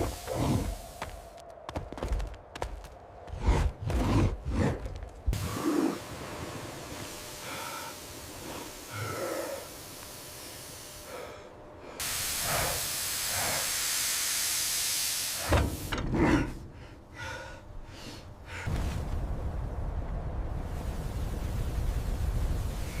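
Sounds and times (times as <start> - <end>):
loud hiss of escaping gas: 0.0 - 1.2, 5.4 - 16.0.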